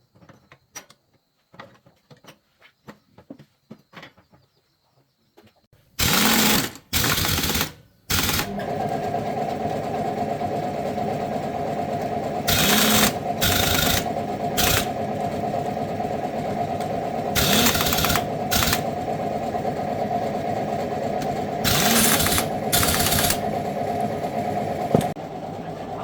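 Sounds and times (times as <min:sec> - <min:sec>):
motor humming: 0:07.4 - 0:26.0.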